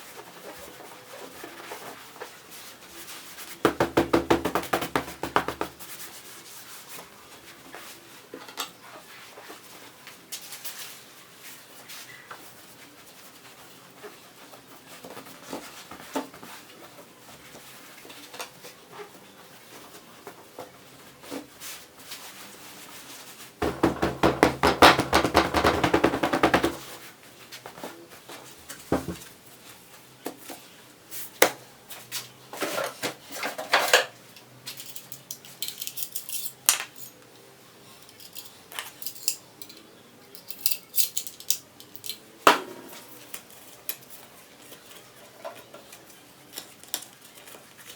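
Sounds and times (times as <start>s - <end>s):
tools and small parts clattering: 32.6s - 37.2s, 38.0s - 42.3s.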